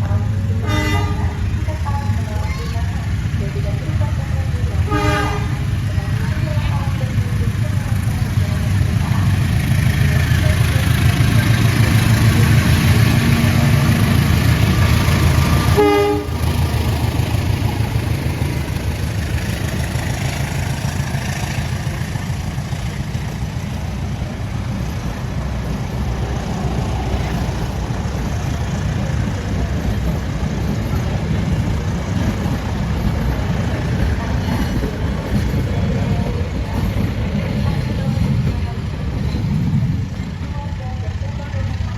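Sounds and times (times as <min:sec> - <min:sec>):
train rumbling past: 0:00.0 - 0:41.9
train horn toot: 0:00.6 - 0:01.4, 0:04.9 - 0:05.6, 0:15.7 - 0:16.4.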